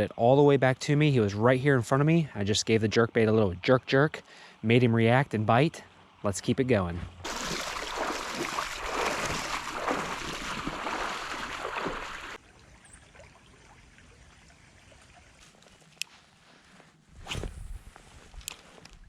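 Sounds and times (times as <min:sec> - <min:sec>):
faint flowing water: 0:00.0 - 0:16.6
creek water rushing and splashing: 0:07.2 - 0:15.6.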